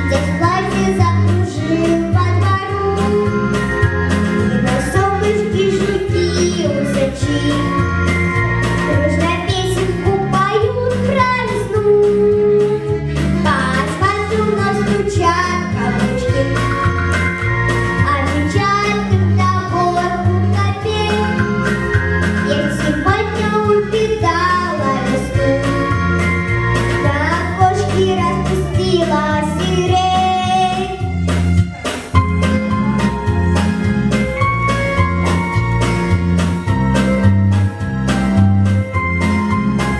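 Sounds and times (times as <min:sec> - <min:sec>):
repeating bass line: 0:00.0 - 0:39.9
person singing a melody: 0:08.9 - 0:17.1
steady drum beat: 0:28.8 - 0:39.9.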